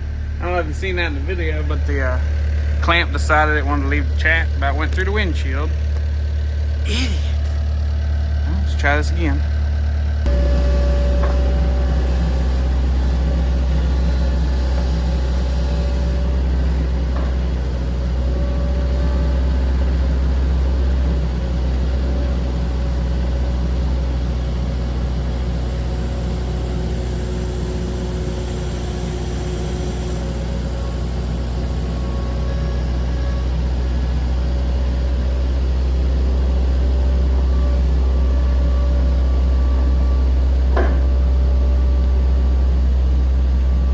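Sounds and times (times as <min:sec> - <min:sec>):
skid steer engine running: 0:00.0 - 0:43.9.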